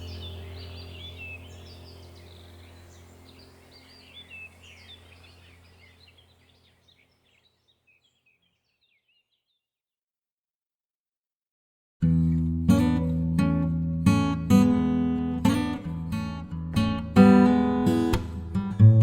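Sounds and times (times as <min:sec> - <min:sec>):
low steady hum: 0:00.0 - 0:07.4
small birds chirping: 0:00.0 - 0:09.7.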